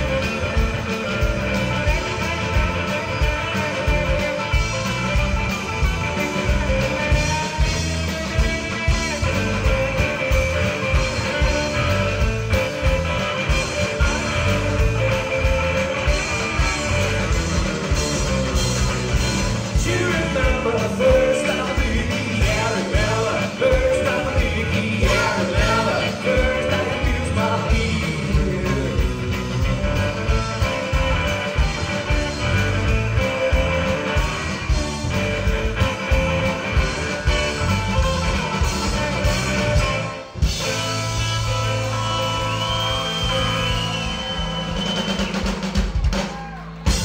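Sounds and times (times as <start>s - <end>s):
live rock band playing: 0.0s - 47.0s
person singing: 19.7s - 29.2s.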